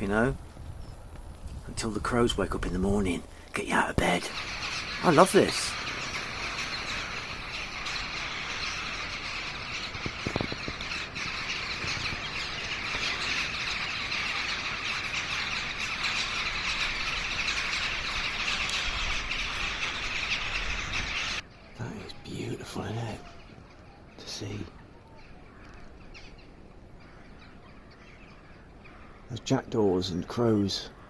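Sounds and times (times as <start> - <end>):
flock of crows calling: 2.1 - 29.6, 30.5 - 31.0.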